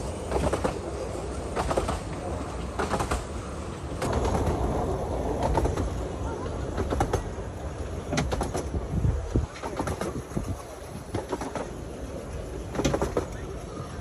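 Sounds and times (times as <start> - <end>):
miniature railway carriage rumbling: 0.0 - 14.0
wheels and couplings clicking: 0.0 - 14.0.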